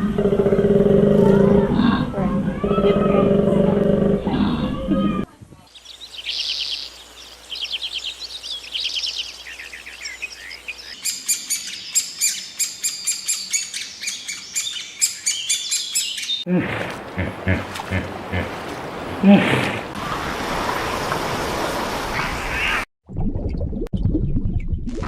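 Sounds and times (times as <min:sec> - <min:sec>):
birds singing in chirping trills: 0:05.7 - 0:16.5.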